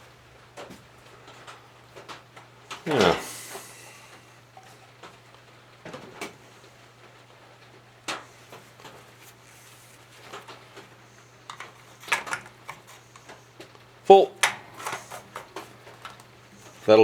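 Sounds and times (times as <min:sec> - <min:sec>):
hands clicking and knocking on engine: 0:11.4 - 0:16.9.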